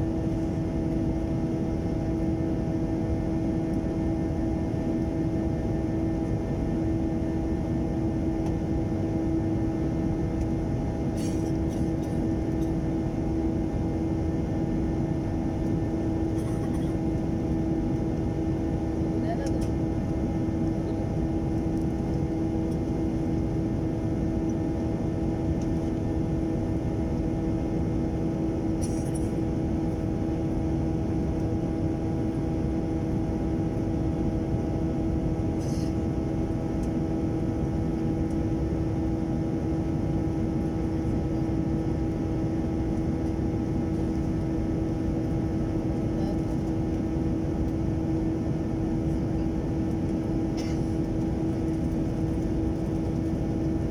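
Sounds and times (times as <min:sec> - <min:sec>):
jet engine cabin rush and hum: 0:00.0 - 0:53.9.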